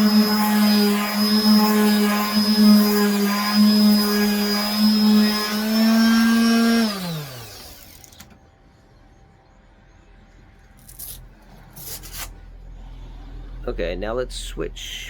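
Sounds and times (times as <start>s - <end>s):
electric sander running: 0.0s - 8.2s
sander motor winding down: 0.0s - 8.2s.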